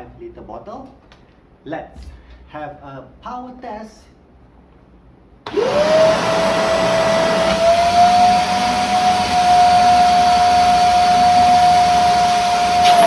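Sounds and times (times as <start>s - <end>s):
vacuum cleaner motor whining: 5.5s - 13.0s.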